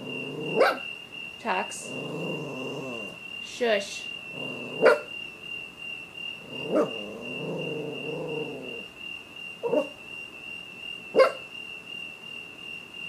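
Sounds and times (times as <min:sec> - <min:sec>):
dog growling: 0:00.0 - 0:00.8, 0:01.6 - 0:03.2, 0:04.3 - 0:05.1, 0:06.4 - 0:08.9, 0:09.6 - 0:09.9
dog barking: 0:00.3 - 0:00.9, 0:04.6 - 0:05.1, 0:06.5 - 0:07.7, 0:09.6 - 0:09.9, 0:11.2 - 0:11.4.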